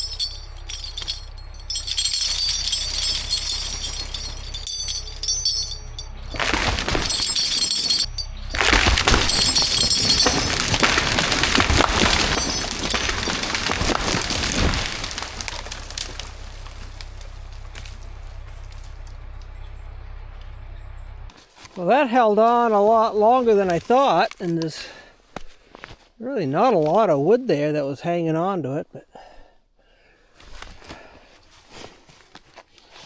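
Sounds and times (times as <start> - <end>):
tree crashing through branches: 0.0 - 20.2
wood cracking and splintering: 0.0 - 20.6, 21.3 - 26.0
low engine hum: 0.0 - 21.5.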